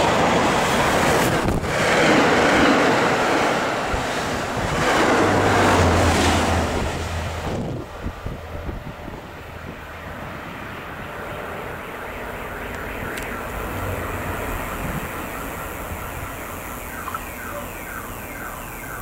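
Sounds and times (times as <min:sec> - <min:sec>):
train rumbling on tracks: 0:00.0 - 0:16.2
falling electronic alarm tone: 0:10.8 - 0:19.0.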